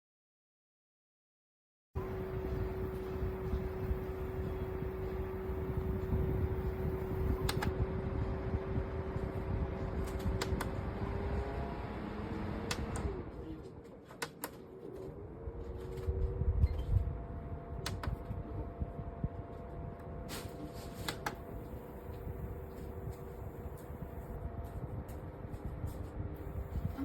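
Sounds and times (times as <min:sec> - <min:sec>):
fan motor humming: 0:02.0 - 0:13.7, 0:14.3 - 0:27.0
sharp clicks: 0:07.2 - 0:07.7, 0:12.7 - 0:13.1, 0:17.8 - 0:18.2.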